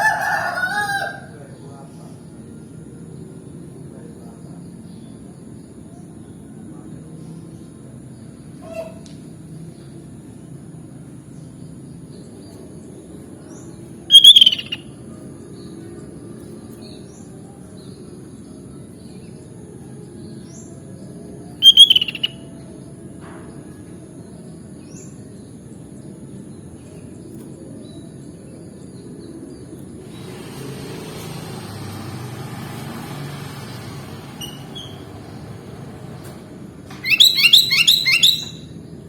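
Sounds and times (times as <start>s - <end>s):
faint short chirps: 14.1s - 14.8s, 21.6s - 22.3s
bulbul calls: 14.1s - 14.9s, 21.6s - 22.4s, 37.0s - 38.7s.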